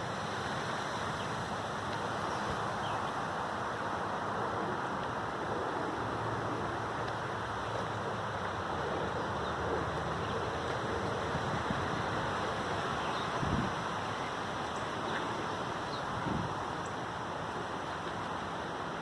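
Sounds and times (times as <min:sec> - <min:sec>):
steady rushing ambience: 0:00.0 - 0:19.0.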